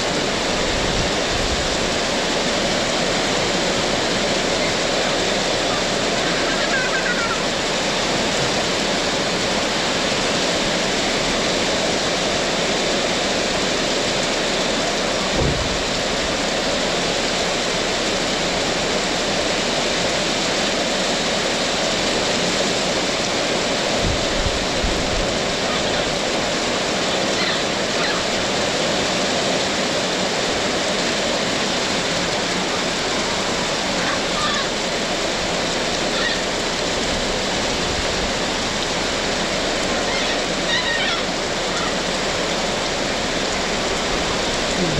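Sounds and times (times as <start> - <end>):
heavy rain pouring: 0.0 - 44.9
brief low bumps: 15.3 - 16.0.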